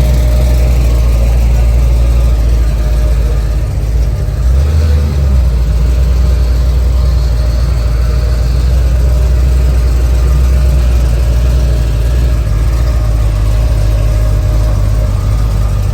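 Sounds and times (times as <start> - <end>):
car engine rumbling: 0.0 - 15.9.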